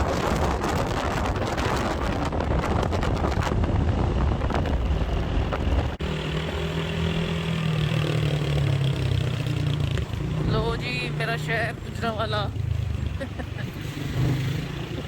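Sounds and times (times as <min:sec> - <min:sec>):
wind rushing over microphone: 0:00.0 - 0:06.0
motorcycle engine hum: 0:00.0 - 0:15.0.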